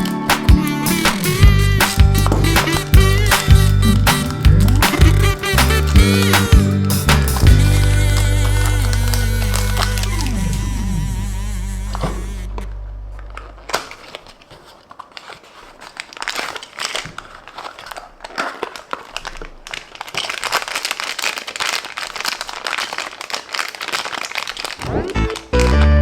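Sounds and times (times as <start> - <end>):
music: 0.0 - 12.3, 25.1 - 26.0
packaging crinkling and rustling: 0.0 - 26.0.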